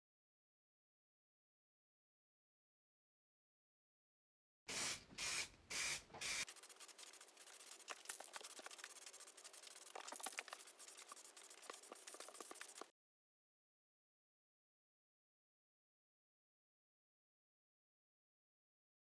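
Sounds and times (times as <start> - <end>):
abrasive scratchy rubbing: 6.4 - 12.9.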